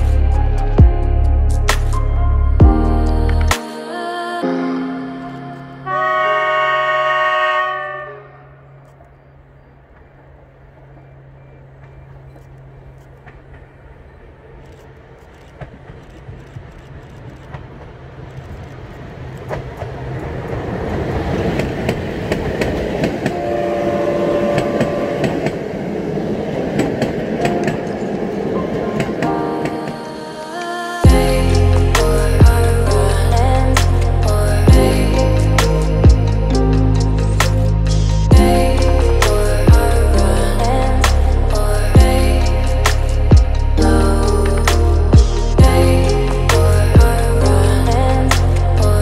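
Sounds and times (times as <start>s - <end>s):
train horn blast: 5.8s - 8.9s, 23.3s - 25.6s
train wheels rumbling on rail: 8.7s - 30.2s.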